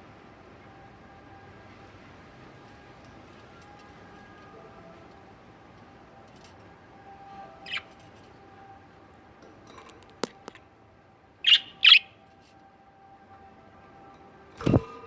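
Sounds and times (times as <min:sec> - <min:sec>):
budgerigars chirping: 0:07.4 - 0:08.0, 0:11.4 - 0:12.2.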